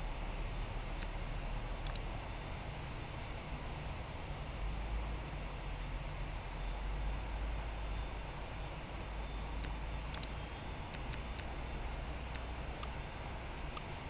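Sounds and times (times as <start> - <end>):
sharp clicks: 0.9 - 2.2, 9.5 - 14.0.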